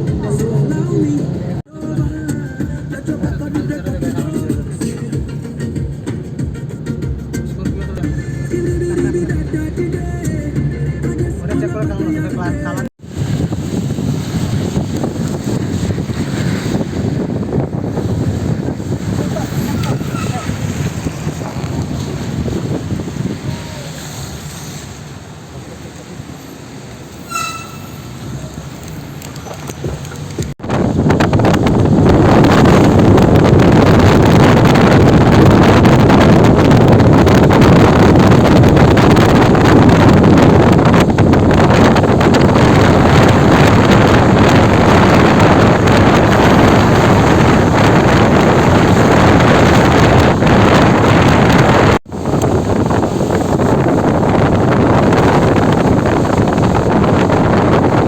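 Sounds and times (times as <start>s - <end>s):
vehicle rumble and road noise: 0.0s - 58.0s
wind buffeting microphone: 12.9s - 25.2s, 26.1s - 58.0s
short horn beep: 27.2s - 28.1s.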